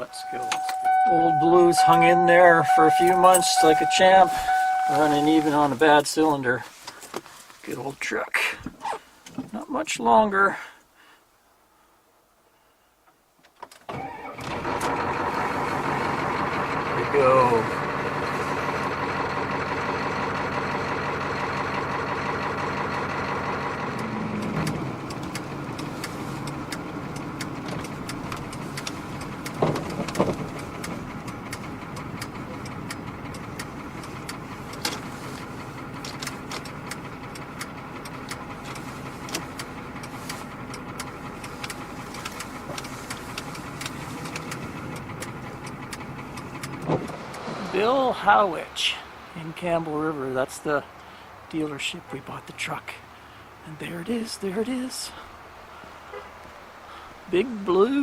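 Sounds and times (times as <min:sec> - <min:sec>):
pickup truck engine misfiring: 0:00.0 - 0:07.2, 0:13.9 - 0:51.5
clicks: 0:23.9 - 0:47.5.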